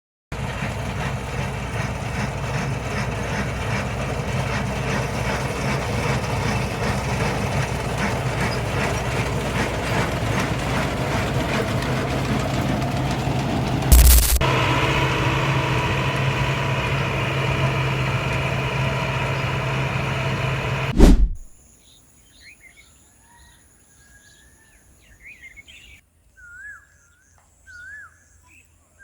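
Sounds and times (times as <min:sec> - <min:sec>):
harvesting machine engine running: 0:00.4 - 0:21.5
loud thump: 0:20.9 - 0:21.5.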